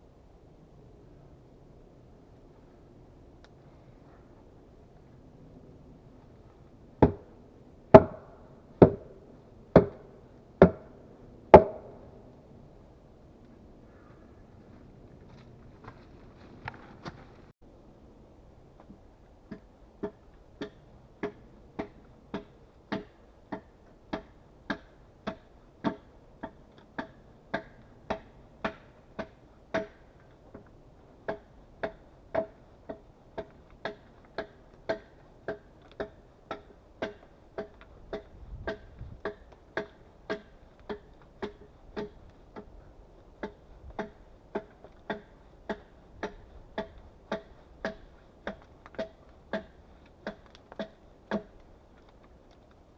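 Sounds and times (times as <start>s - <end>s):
hand tool knocking on wood: 7.9s - 9.1s, 9.8s - 10.0s, 10.6s - 10.9s, 11.6s - 11.9s, 43.4s - 51.5s.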